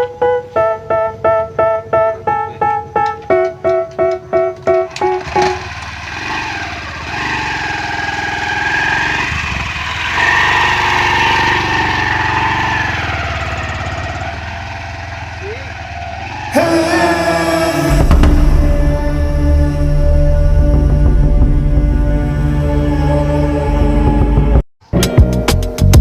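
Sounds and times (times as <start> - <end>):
keyboard intro tune: 0.0 - 6.1
diesel water pump engine running: 5.2 - 16.6.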